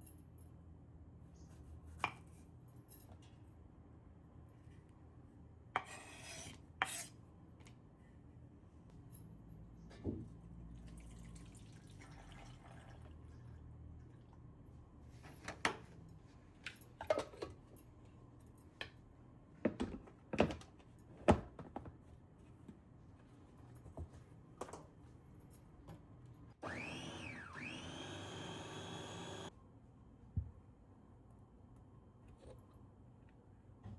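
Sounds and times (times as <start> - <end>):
whirring hum: 26.6 - 29.5.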